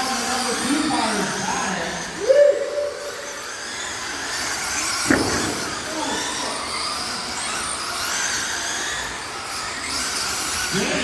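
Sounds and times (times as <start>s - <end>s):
rc car motors whining: 0.0s - 11.0s
sharp knock: 5.1s - 5.7s.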